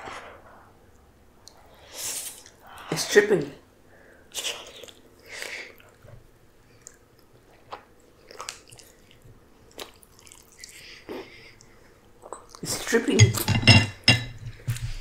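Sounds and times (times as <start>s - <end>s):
person chewing noodles: 4.4s - 12.7s.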